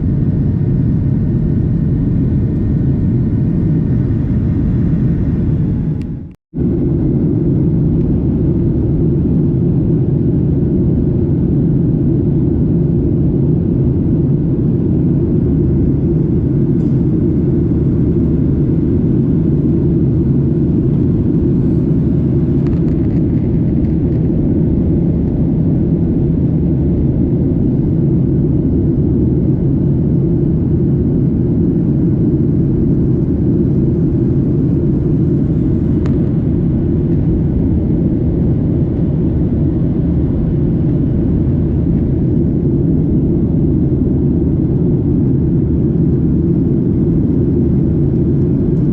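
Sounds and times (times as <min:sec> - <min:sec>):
airliner cabin engine rumble: 0:00.0 - 0:48.9.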